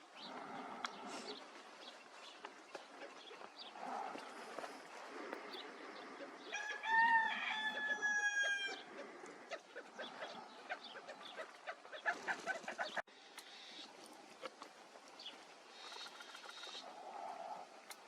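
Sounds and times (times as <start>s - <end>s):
bird chirps and clicks: 0.2s - 1.4s, 10.0s - 13.8s, 14.4s - 16.9s.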